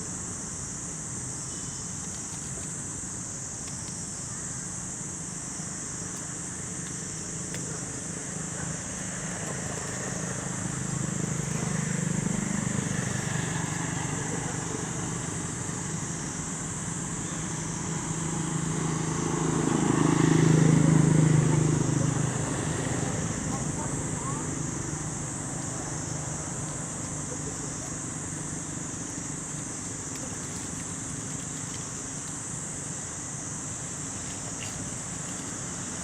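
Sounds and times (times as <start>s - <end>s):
steady high hiss: 0.0s - 36.0s
vehicle engine passing: 18.1s - 29.4s.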